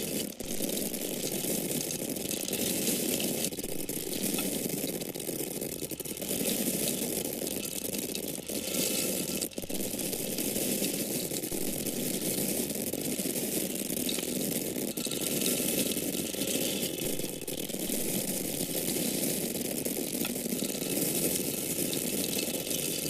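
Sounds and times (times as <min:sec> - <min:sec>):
dry corn kernels falling: 0:00.0 - 0:23.0.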